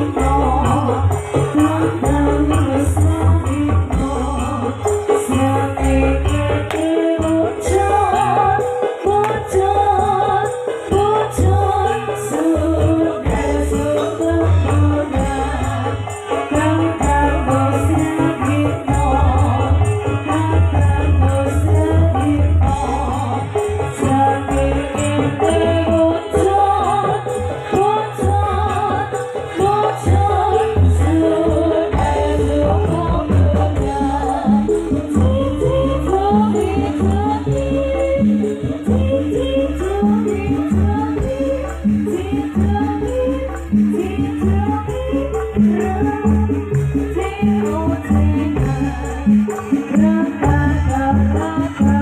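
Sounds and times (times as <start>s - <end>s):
jingling shaking percussion: 0.0s - 52.0s.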